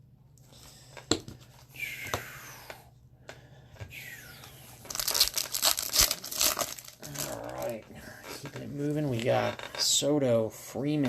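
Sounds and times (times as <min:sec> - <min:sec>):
foil wrapper crinkling: 0:04.9 - 0:07.8.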